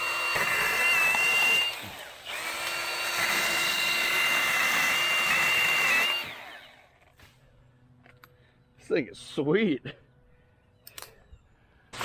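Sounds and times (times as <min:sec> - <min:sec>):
electric chainsaw whining: 0:00.0 - 0:07.0.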